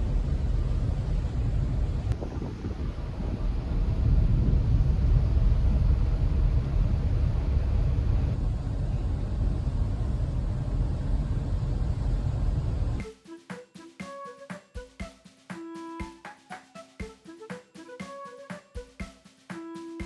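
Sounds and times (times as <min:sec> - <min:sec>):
ship engine low rumble: 0:00.0 - 0:13.0.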